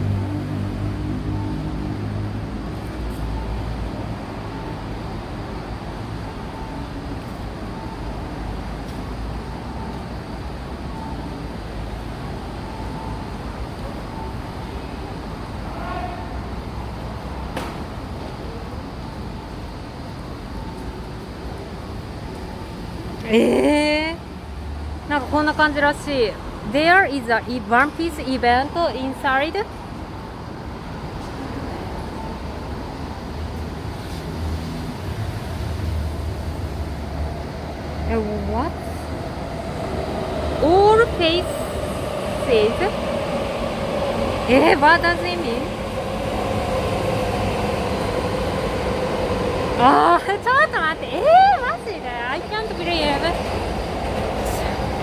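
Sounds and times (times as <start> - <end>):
low vehicle rumble: 34.4 - 55.0.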